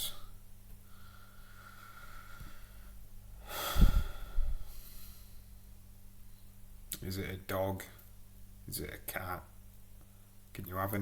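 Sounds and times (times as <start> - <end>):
faint breathing: 0.0 - 5.7.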